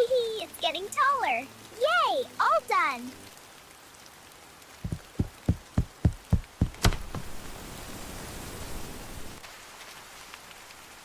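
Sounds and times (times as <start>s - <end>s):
rain hissing: 0.0s - 11.0s
dull thumps: 4.8s - 7.4s.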